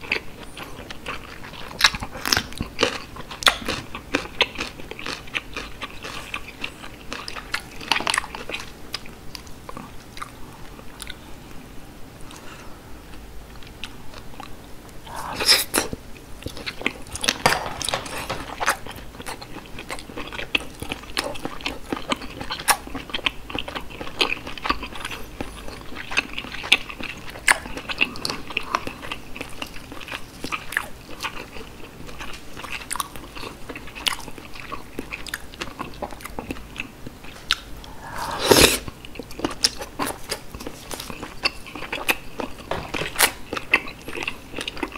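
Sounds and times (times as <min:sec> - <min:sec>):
wet chewing mouth sounds: 0:00.0 - 0:11.2, 0:13.1 - 0:44.9.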